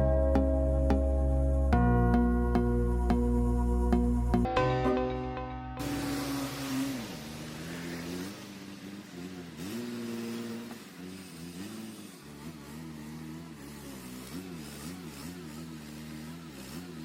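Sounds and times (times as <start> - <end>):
music track: 0.0 - 7.6
rushing hiss: 5.8 - 14.9
wood chipper engine running: 5.8 - 17.0.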